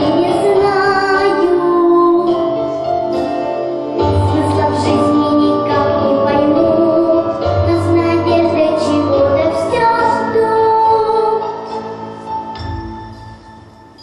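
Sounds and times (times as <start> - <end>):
young female voice singing: 0.0 - 2.6, 4.1 - 12.0
instrumental backing track: 0.0 - 14.0.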